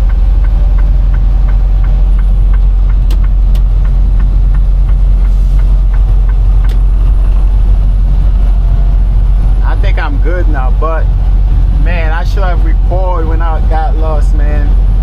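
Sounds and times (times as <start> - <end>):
sharp clicks: 0.0 - 6.9
truck engine and road rumble: 0.0 - 15.0.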